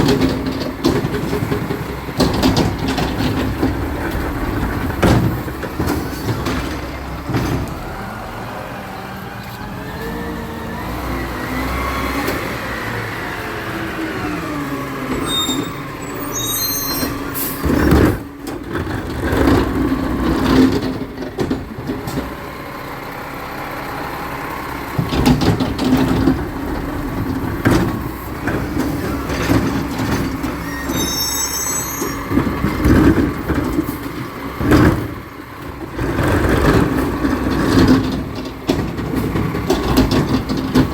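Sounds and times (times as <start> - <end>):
metal clanks and knocks: 0.0 - 7.9, 17.5 - 22.4, 25.0 - 31.1, 32.0 - 40.9
truck engine and hydraulics: 0.0 - 40.9
high-pitched squeaks: 15.2 - 17.4, 30.6 - 32.3.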